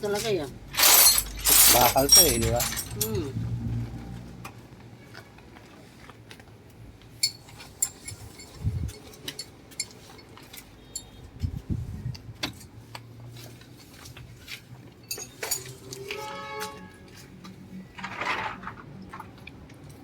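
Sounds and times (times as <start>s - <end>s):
metallic clinks of tools: 0.8s - 3.2s, 7.2s - 11.2s, 15.0s - 16.2s.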